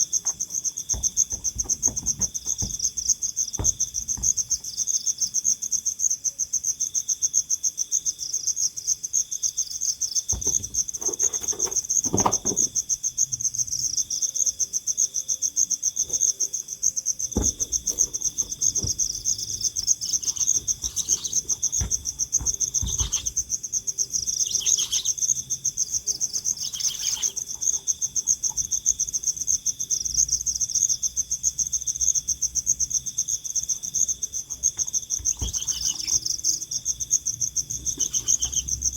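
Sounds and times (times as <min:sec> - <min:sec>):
crickets trilling: 0:00.0 - 0:38.9
low knocks: 0:00.2 - 0:04.8, 0:17.4 - 0:23.6.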